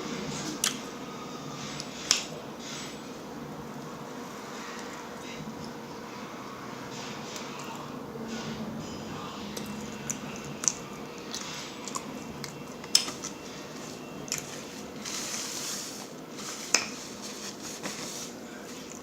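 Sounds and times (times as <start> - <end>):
wet chewing: 9.5 - 15.1.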